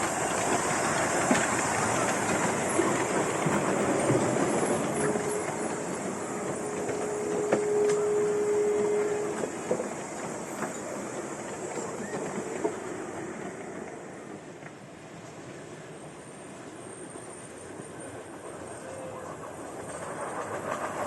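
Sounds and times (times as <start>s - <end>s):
thin steady squeal: 0.0s - 13.6s
wheels clicking over track: 0.0s - 14.8s
train rolling past: 0.0s - 21.0s.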